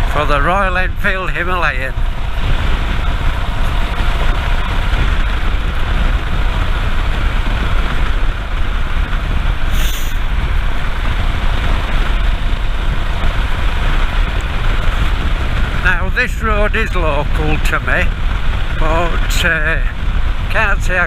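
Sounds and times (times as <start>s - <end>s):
motorcycle engine running: 0.0s - 21.0s
wind rush on microphone: 0.0s - 21.0s
short hiss: 9.7s - 10.2s.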